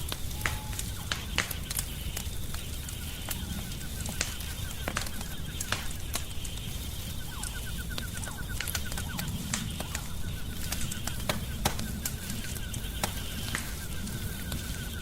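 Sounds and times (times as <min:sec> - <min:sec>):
rapid faint chirping: 0:00.0 - 0:15.0
sharp fire pops: 0:00.0 - 0:15.0
wood fire crackling: 0:00.0 - 0:15.0.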